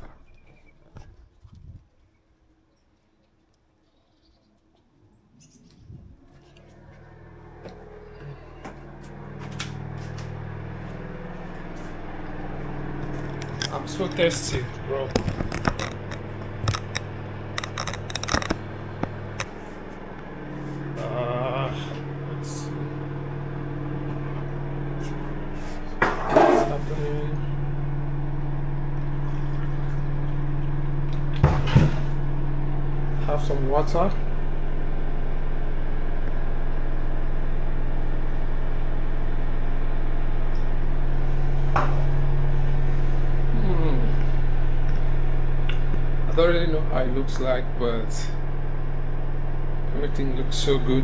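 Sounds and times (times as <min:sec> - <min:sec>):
steady low hum: 0:00.0 - 0:51.0
sharp clicks and snips: 0:13.3 - 0:19.5.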